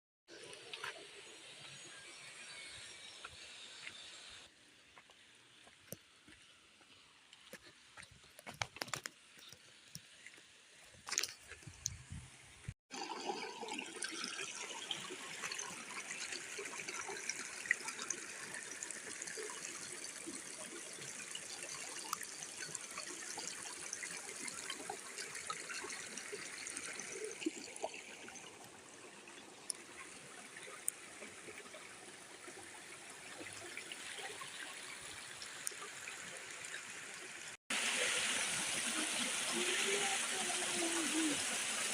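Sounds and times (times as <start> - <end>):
water trickling: 12.9 - 41.9.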